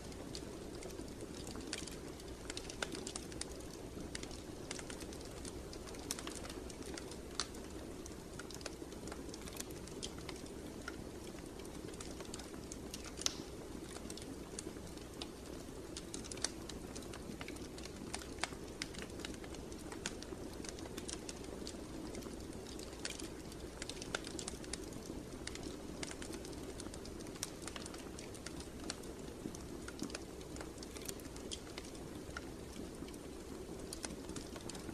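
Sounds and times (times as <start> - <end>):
fire pops and snaps: 0.0 - 34.9
wood fire crackling: 0.0 - 34.9.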